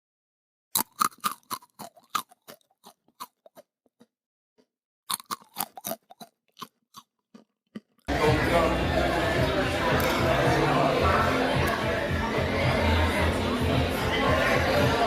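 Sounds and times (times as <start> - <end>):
person chewing crunchy food: 0.8 - 8.1.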